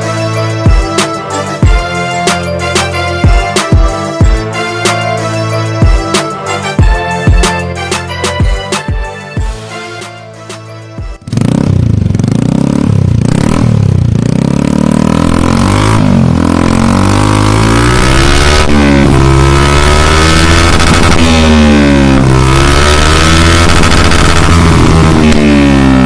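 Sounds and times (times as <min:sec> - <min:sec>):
scooter engine revving: 0:11.2 - 0:26.0.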